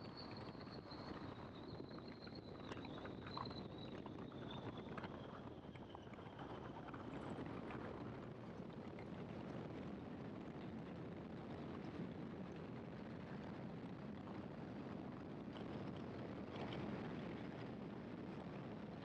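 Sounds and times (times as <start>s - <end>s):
wind noise: 6.8s - 19.0s.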